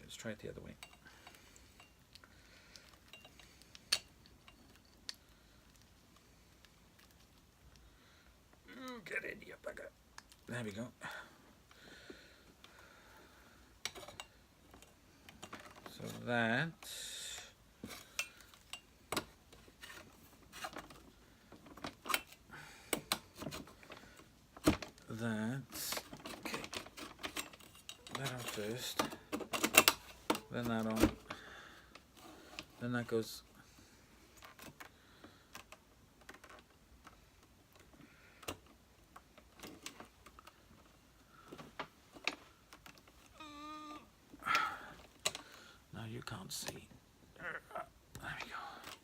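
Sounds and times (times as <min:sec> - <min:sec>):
plastic parts clicking and knocking: 0:13.8 - 0:16.0, 0:17.8 - 0:25.1, 0:25.8 - 0:32.7, 0:34.4 - 0:43.3, 0:44.6 - 0:45.6.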